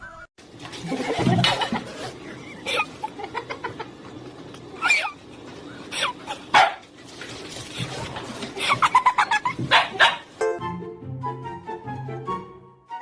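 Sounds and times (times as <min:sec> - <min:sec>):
dog barking and yipping: 0:06.5 - 0:06.8, 0:09.4 - 0:10.3.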